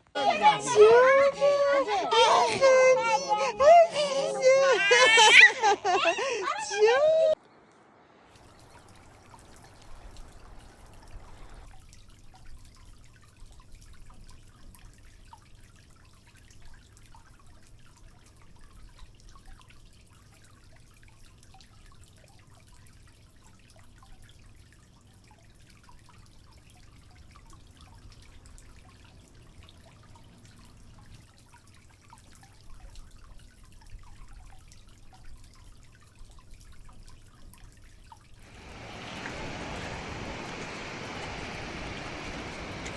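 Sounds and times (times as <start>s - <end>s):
water trickling and dripping: 8.3s - 42.9s
low steady rumble: 38.5s - 42.9s.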